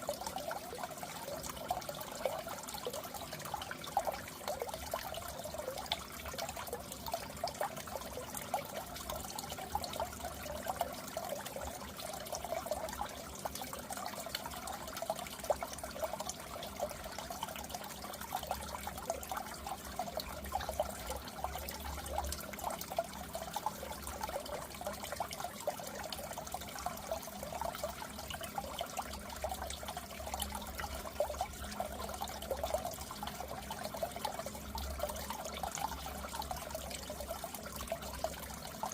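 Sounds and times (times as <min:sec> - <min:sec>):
aquarium water trickling and bubbling: 0:00.0 - 0:38.9.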